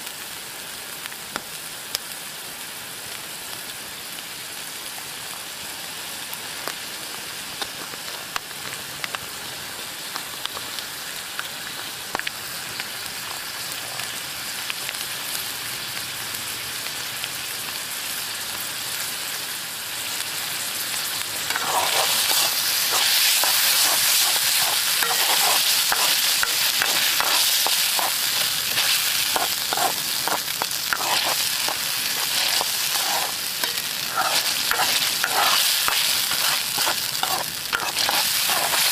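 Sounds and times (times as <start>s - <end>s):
food sizzling in a wok: 0.0s - 38.9s
stirring clattering against pan: 21.5s - 38.9s.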